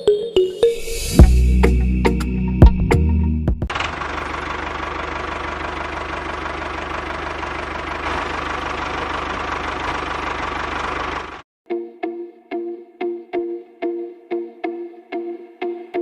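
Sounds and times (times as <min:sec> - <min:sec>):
small engine rumbling: 0:03.7 - 0:11.4.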